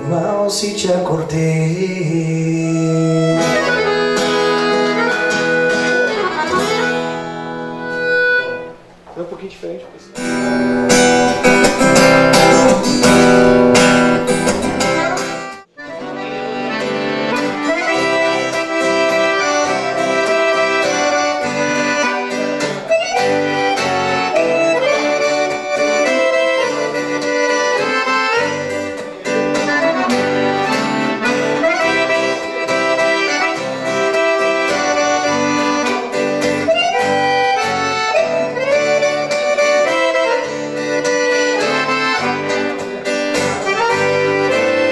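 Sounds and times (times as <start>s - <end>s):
acoustic guitar strumming: 0.0s - 44.9s
accordion melody: 1.6s - 9.2s, 10.2s - 44.9s.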